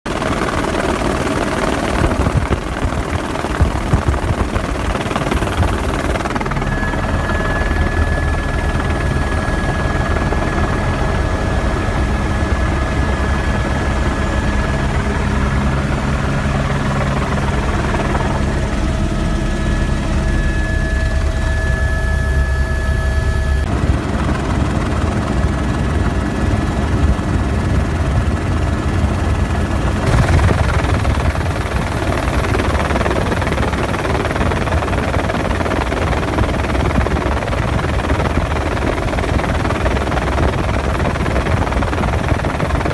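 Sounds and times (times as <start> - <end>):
helicopter rotor chop: 0.1 - 42.9
turbine whine: 1.5 - 25.0, 29.3 - 34.1.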